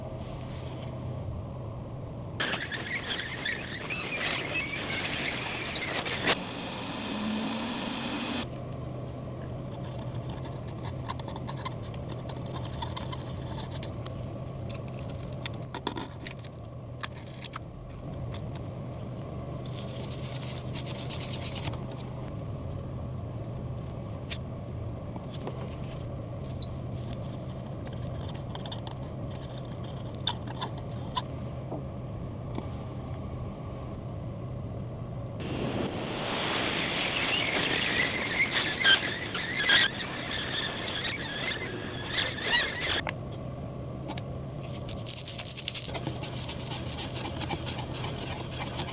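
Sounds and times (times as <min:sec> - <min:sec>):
hiss: 0:02.5 - 0:08.4, 0:35.4 - 0:43.0
low hum: 0:31.4 - 0:44.9
tool clicks and scrapes: 0:44.7 - 0:48.9.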